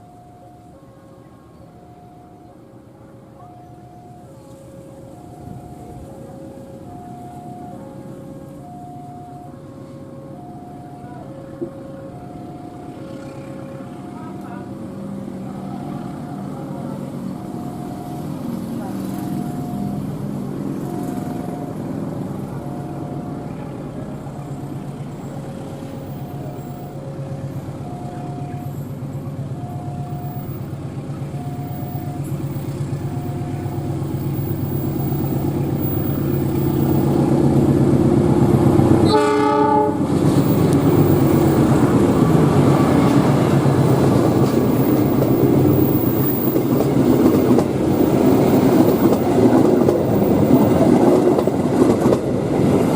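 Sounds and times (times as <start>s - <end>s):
diesel train engine drone: 0.0s - 52.9s
train passing rumble and clatter: 0.0s - 52.9s
alternating two-note beeping: 26.0s - 39.1s
train horn blast: 38.8s - 41.1s.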